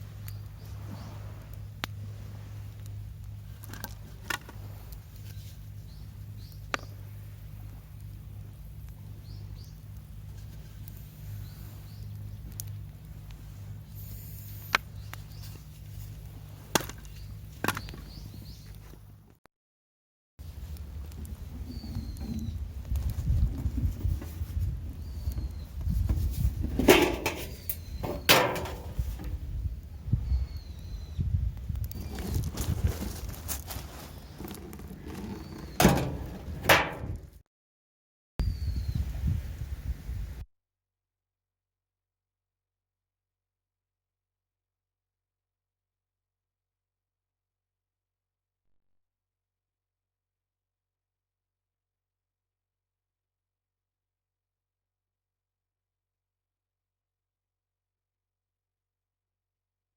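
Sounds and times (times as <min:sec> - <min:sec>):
low outdoor rumble: 0:00.0 - 0:19.4, 0:20.4 - 0:37.4
steady low hum: 0:00.0 - 0:19.4.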